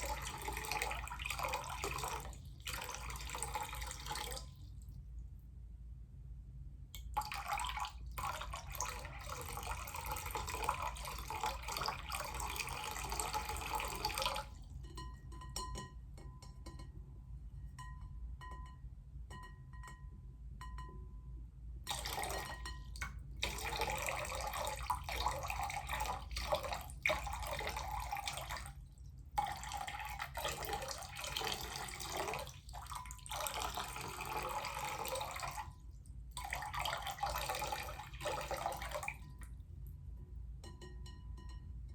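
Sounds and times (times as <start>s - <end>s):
drips plinking into water: 0.0s - 4.6s, 7.0s - 16.9s, 21.9s - 28.8s, 29.4s - 39.6s, 40.6s - 41.9s
water pouring into a bowl: 0.0s - 4.8s, 7.0s - 14.8s, 21.9s - 39.6s.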